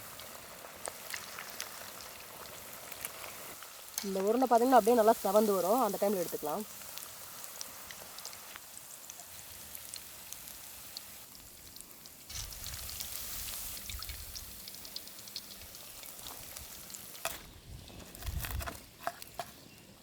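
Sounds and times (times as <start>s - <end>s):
meatballs sizzling in hot oil: 0.0s - 17.6s.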